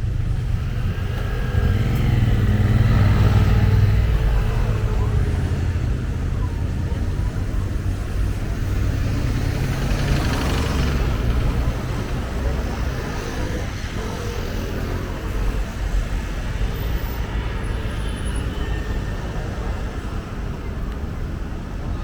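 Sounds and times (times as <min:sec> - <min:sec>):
road traffic rumble: 0:00.0 - 0:22.0
vehicle passing close by: 0:08.6 - 0:15.7.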